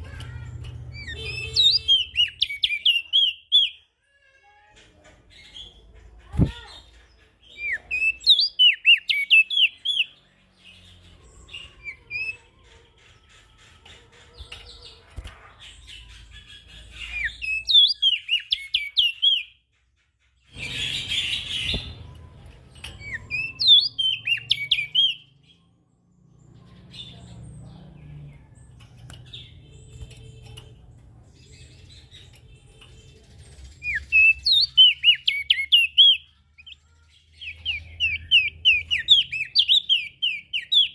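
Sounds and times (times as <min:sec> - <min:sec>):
songbird chirping: 0:00.0 - 0:40.9.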